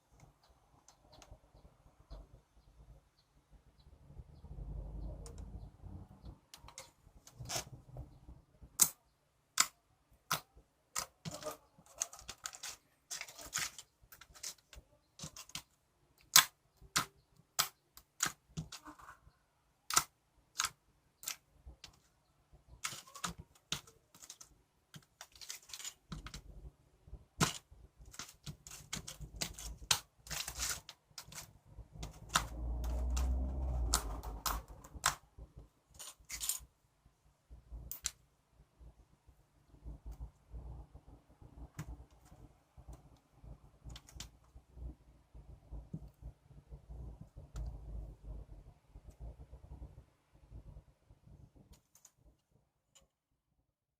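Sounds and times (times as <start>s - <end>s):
hard objects clicking and tapping: 9.6s - 19.0s, 22.7s - 26.7s, 27.4s - 36.7s.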